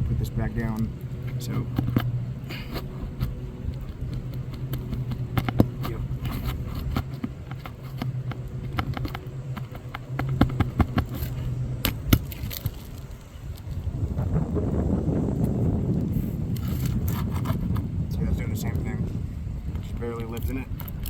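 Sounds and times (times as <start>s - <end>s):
steady low hum: 0.0s - 21.0s
hand tool scraping shingles: 0.7s - 13.2s.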